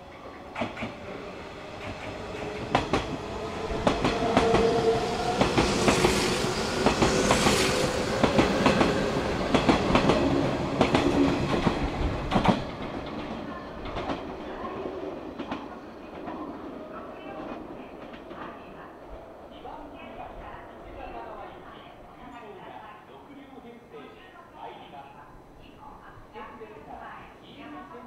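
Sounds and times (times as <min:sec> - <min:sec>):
train wheels clicking over rail joints: 0:09.5 - 0:14.3.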